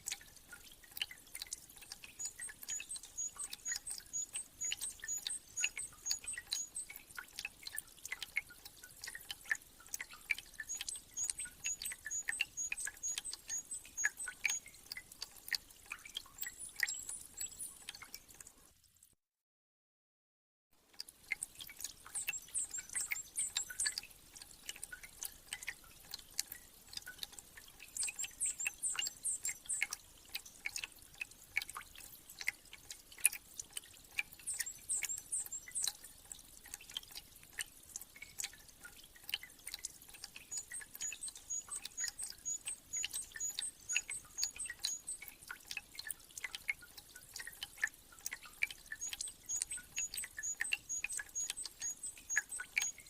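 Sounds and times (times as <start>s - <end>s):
meltwater dripping: 0.0s - 19.0s, 20.9s - 53.0s
small bird singing: 2.1s - 7.0s, 10.1s - 14.8s, 16.4s - 18.1s, 22.1s - 24.0s, 27.9s - 30.0s, 34.4s - 36.0s, 40.4s - 45.3s, 48.9s - 53.0s.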